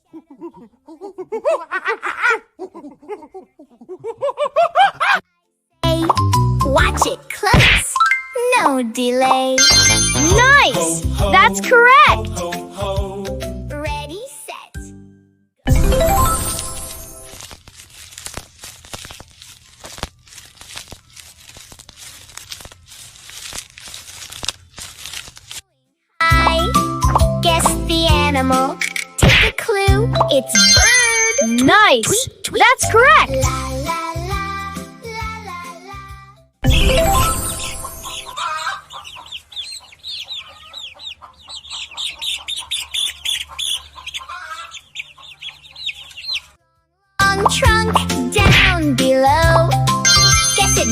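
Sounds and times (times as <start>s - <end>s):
plastic bag crinkling: 16.3s - 25.7s
small bird chirping: 38.0s - 46.6s.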